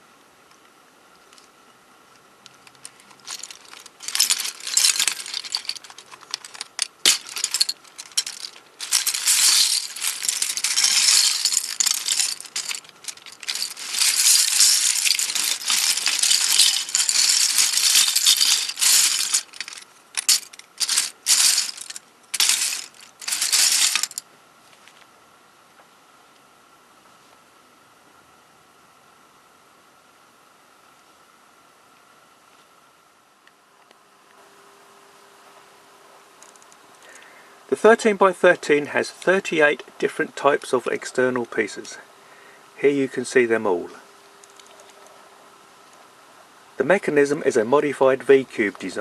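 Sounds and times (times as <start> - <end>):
plastic puzzle pieces rattling: 2.6 - 24.2.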